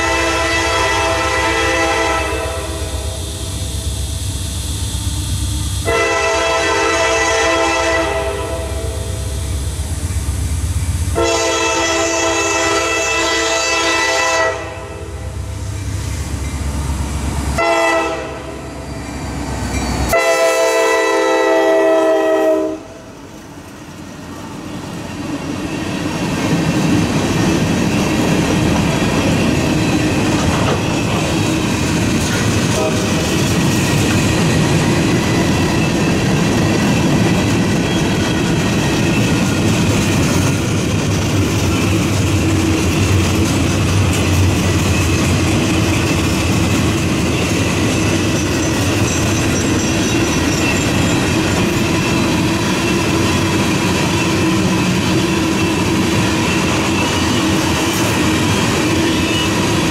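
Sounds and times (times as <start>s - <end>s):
locomotive air horn blasts: 0.0s - 3.2s, 5.8s - 9.2s, 11.1s - 15.3s, 17.6s - 18.7s, 20.1s - 23.0s, 32.8s - 33.1s
train wheels on rails: 0.0s - 59.9s.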